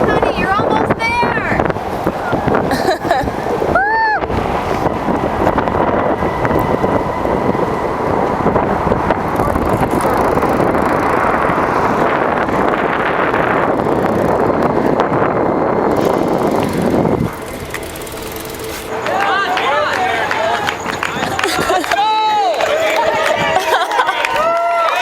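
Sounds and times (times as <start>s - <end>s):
steady hum: 0.0s - 23.6s
vehicle road and wind noise: 0.0s - 25.0s.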